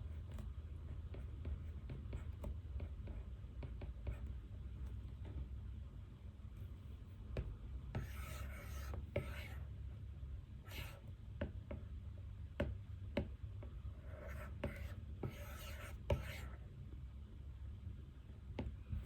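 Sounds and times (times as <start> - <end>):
pen scratching on paper: 0.0 - 5.5, 7.9 - 9.7, 10.7 - 11.1, 14.0 - 16.6
low room hum: 0.0 - 19.0.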